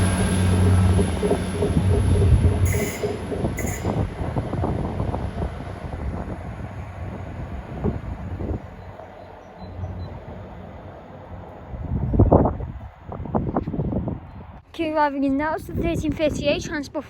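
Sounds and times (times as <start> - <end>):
high-pitched squeaks: 0.0 - 5.0
diesel train pulling away: 0.0 - 13.4.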